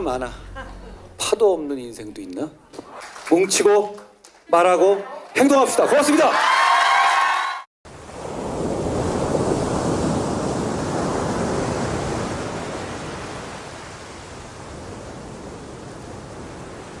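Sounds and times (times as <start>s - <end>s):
ocean surf: 7.9s - 17.0s.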